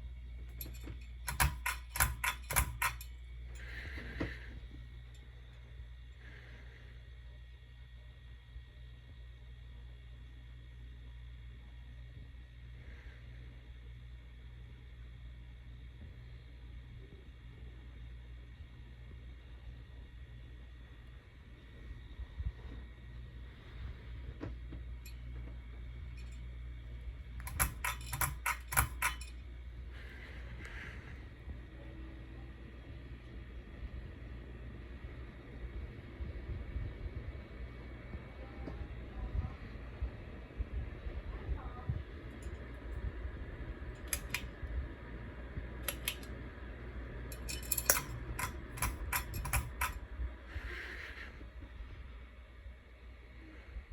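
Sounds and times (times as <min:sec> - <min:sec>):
ceiling fan humming: 0:00.0 - 0:53.9
metallic clicks and rattles: 0:00.5 - 0:03.7, 0:27.4 - 0:29.4, 0:44.0 - 0:44.5, 0:45.8 - 0:46.3, 0:47.3 - 0:50.0.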